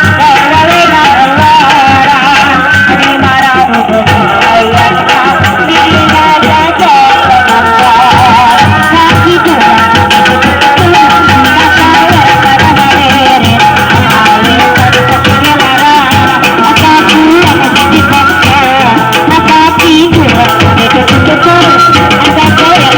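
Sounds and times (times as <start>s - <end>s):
fast continuous drumming: 0.0s - 22.9s.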